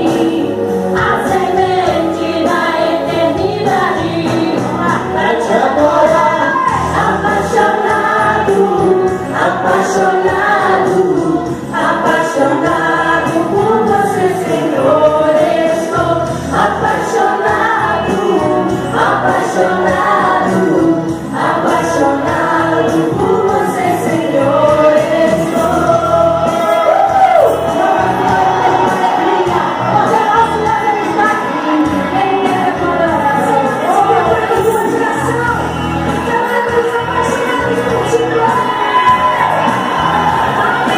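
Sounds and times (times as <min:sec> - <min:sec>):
congregation singing a hymn: 0:00.0 - 0:30.4
band accompaniment: 0:00.0 - 0:40.9.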